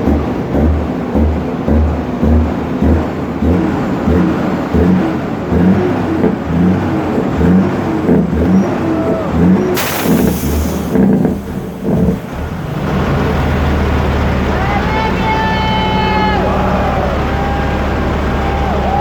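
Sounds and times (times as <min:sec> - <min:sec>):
heavy trucks rumbling: 0:00.0 - 0:19.0
loud air hiss: 0:09.7 - 0:12.4.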